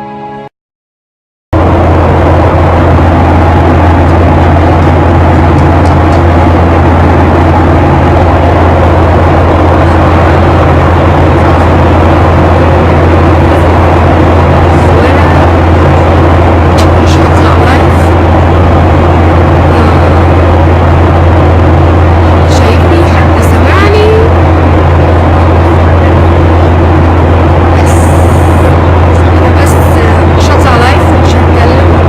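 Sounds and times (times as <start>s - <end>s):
loud low hum: 1.5s - 32.0s
rushing noise: 1.6s - 32.0s.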